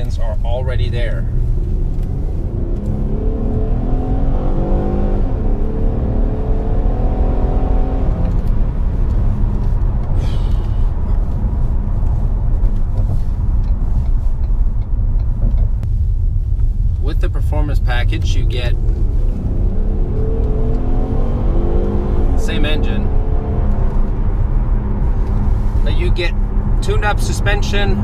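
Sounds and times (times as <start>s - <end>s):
passing car accelerating: 1.3s - 11.5s, 18.8s - 28.0s.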